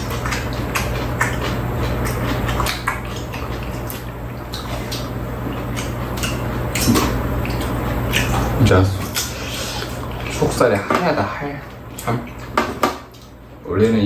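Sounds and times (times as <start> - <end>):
wet chewing and lip-smacking: 0.0 - 10.6
steady low hum: 0.0 - 14.0.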